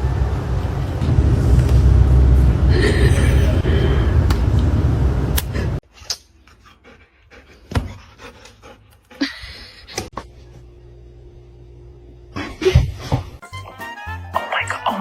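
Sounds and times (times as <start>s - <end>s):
dog panting: 6.5s - 9.8s.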